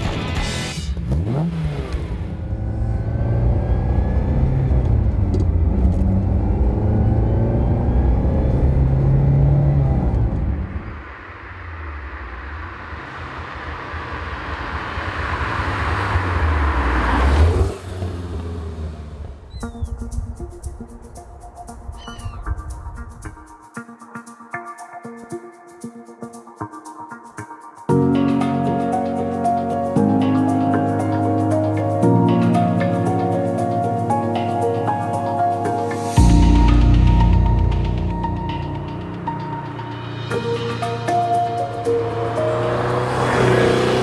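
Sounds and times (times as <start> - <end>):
car passing by: 7.0 - 19.5, 39.8 - 44.0
sports car engine revving: 42.0 - 44.0.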